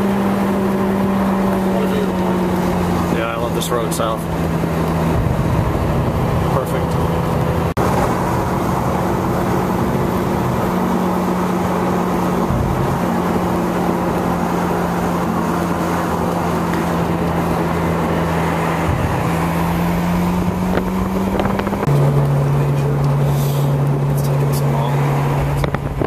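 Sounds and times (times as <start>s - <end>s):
car engine humming: 0.0s - 26.0s
road and wind noise: 0.0s - 26.0s.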